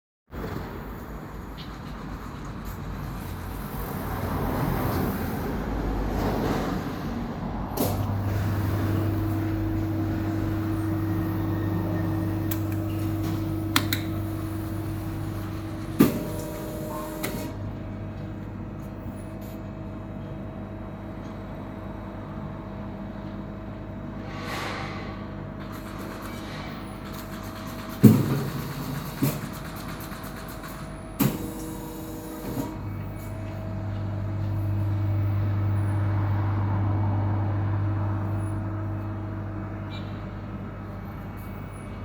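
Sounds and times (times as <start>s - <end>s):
motor humming: 7.7s - 17.7s
motor switch click: 10.6s - 17.5s
sharp mechanical clacks: 25.6s - 31.8s.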